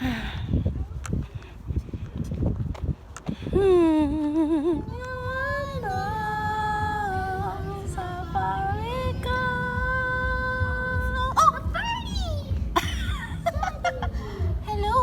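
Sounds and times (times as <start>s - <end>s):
wind rumble on microphone: 0.0s - 15.0s
woman humming: 3.6s - 5.0s.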